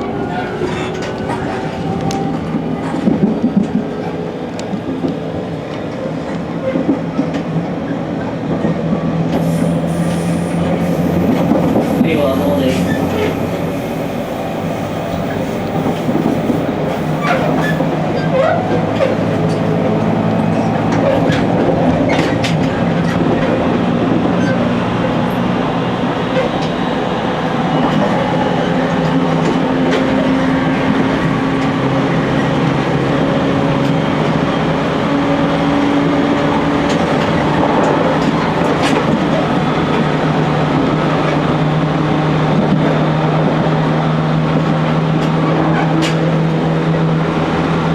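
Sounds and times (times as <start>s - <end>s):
train rumble: 0.0s - 47.9s
wheels clicking on rails: 8.5s - 25.5s
traction motors whining: 9.3s - 30.2s.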